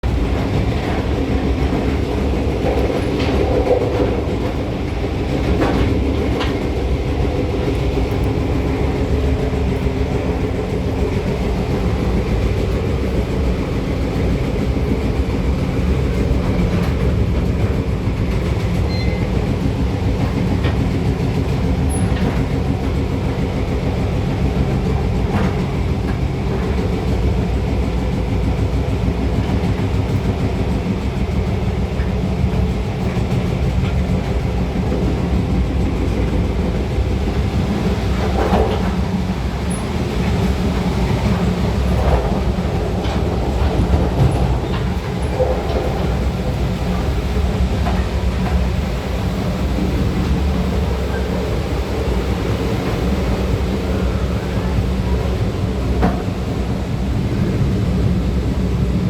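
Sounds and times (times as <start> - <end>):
steam train rumbling: 0.0 - 59.0
train wheel clicks: 0.1 - 58.2.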